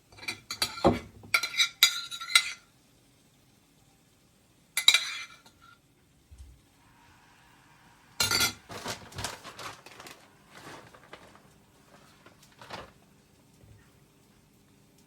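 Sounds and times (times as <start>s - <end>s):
dishes and cutlery clattering: 0.1s - 2.7s, 4.8s - 5.8s, 8.2s - 9.0s.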